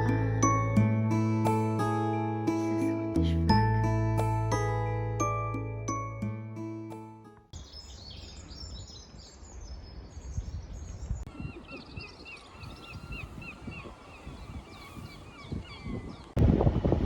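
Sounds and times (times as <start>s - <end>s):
songbirds chirping: 7.6s - 16.4s
wind on microphone: 8.6s - 17.0s.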